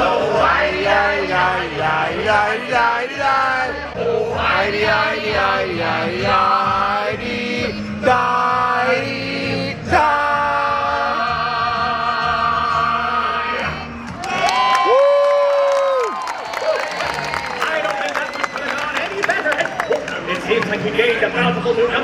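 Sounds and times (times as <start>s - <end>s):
group of voices singing: 0.0s - 14.0s
backing music: 0.0s - 14.5s.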